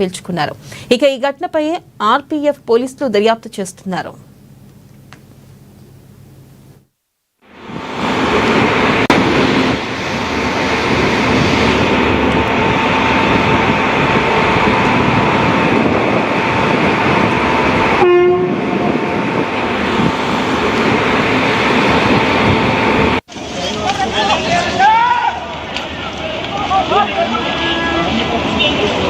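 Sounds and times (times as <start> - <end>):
train rumbling: 7.5 - 29.0
train horn: 18.0 - 19.0.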